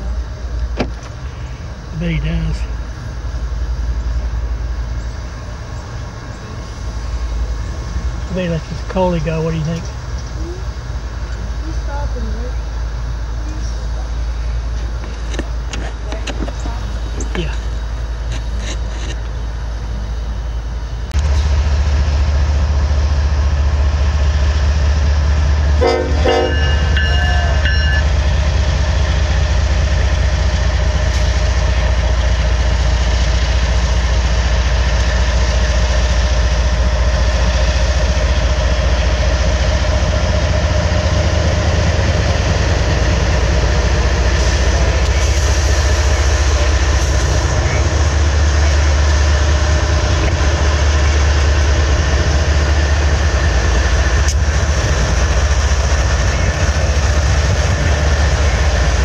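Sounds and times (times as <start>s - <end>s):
diesel locomotive engines rumbling: 0.0s - 59.0s
locomotive horn blast: 25.8s - 28.2s.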